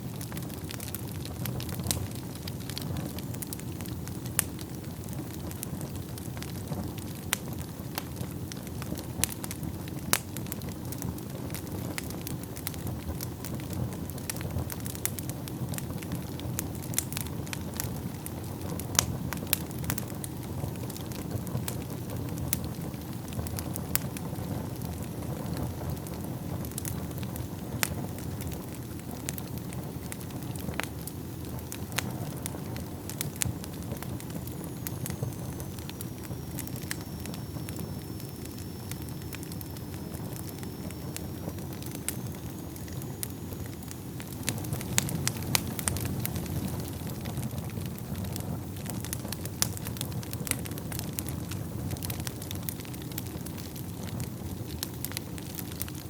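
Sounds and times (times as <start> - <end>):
flames rushing: 0.0 - 56.0
wood crackling and popping: 0.0 - 56.0
faint high whistle: 34.2 - 44.8.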